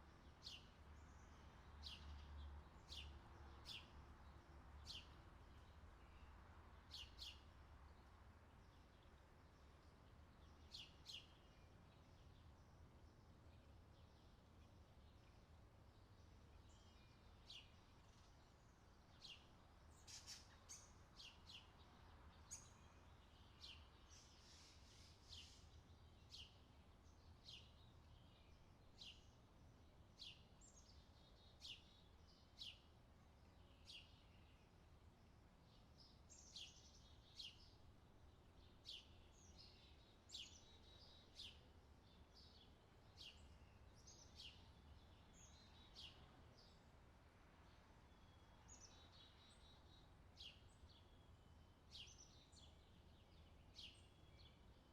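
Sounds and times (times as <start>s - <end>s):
bird chirping: 16.2s - 29.4s, 35.7s - 46.9s, 48.0s - 54.9s.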